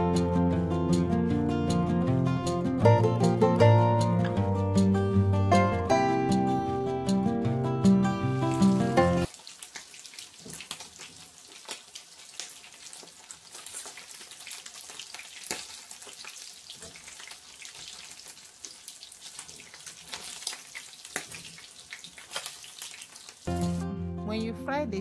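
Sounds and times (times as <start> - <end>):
chicken wings frying in oil: 8.3 - 23.8.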